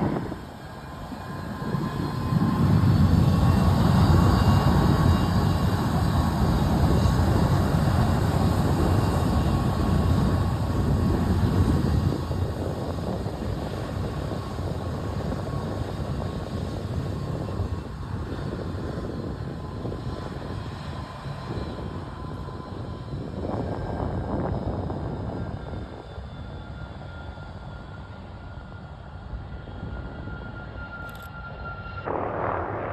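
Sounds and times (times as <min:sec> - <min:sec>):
aircraft engine rumble: 0:00.0 - 0:32.9
faint steady whine: 0:29.1 - 0:32.9.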